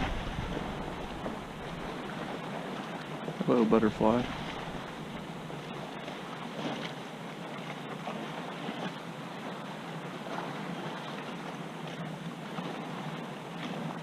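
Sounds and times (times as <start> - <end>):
wind noise on microphone: 0.0 - 2.0
water lapping against kayak hull: 0.0 - 14.0.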